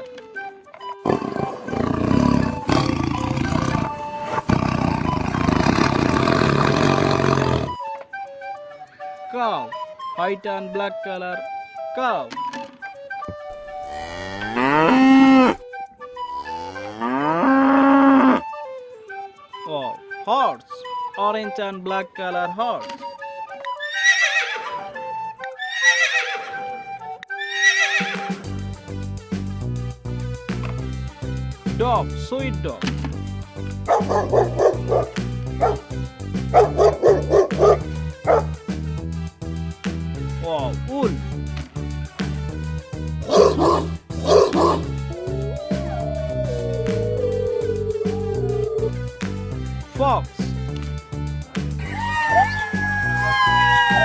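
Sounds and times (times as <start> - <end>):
horse whinnying: 1.0 - 7.8, 23.8 - 24.9, 25.6 - 26.7, 27.4 - 28.3, 33.9 - 35.9, 36.6 - 38.5, 43.2 - 44.9
tiger roaring: 1.0 - 7.8, 33.9 - 38.6, 43.2 - 49.1.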